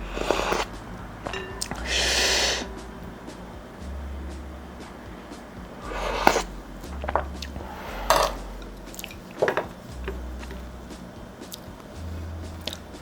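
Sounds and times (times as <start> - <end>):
low room hum: 0.0 - 13.0
utensils clinking against dish: 0.2 - 1.9, 8.0 - 10.6.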